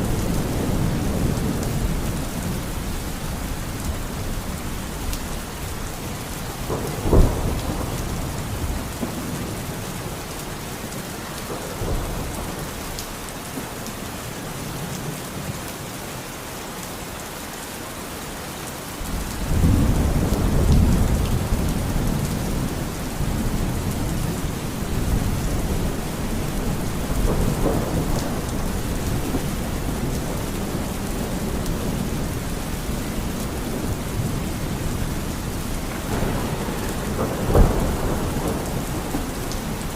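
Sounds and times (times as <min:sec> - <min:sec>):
deep rumble of thunder: 0:00.0 - 0:10.3, 0:11.4 - 0:13.1, 0:19.0 - 0:39.9
heavy rain: 0:00.0 - 0:39.9
thunder crack: 0:06.6 - 0:09.4, 0:19.1 - 0:39.9.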